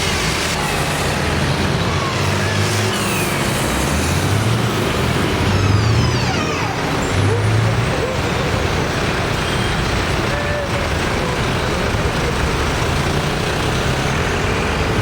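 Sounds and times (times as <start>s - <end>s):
tractor engines passing: 0.0s - 15.0s.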